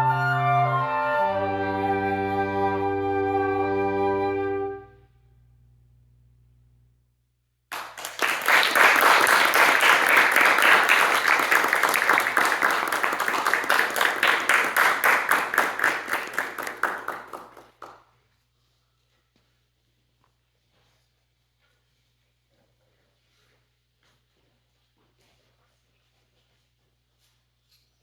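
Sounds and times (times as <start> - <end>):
audience applauding: 7.7 - 18.0.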